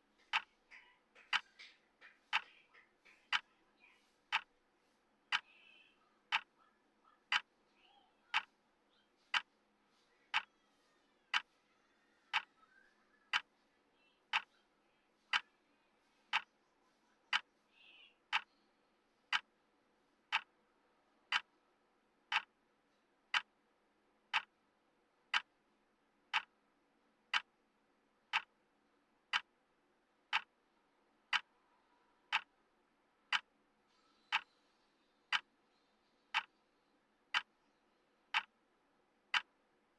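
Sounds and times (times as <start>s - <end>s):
timer clock ticking: 0.0s - 3.6s, 4.2s - 4.6s, 5.3s - 5.5s, 6.2s - 6.6s, 7.3s - 7.5s, 8.3s - 8.6s, 9.3s - 9.5s, 10.3s - 10.6s, 11.3s - 11.5s, 12.3s - 12.6s, 13.3s - 13.5s, 14.3s - 14.6s, 15.3s - 15.6s, 16.3s - 16.6s, 17.3s - 17.5s, 18.2s - 18.6s, 19.3s - 19.6s, 20.2s - 20.6s, 21.3s - 21.6s, 22.2s - 22.6s, 23.2s - 24.7s, 25.3s - 26.7s, 27.3s - 30.7s, 31.3s - 31.6s, 32.3s - 32.6s, 33.3s - 33.6s, 34.2s - 34.6s, 35.3s - 35.7s, 36.3s - 36.6s, 37.3s - 39.9s.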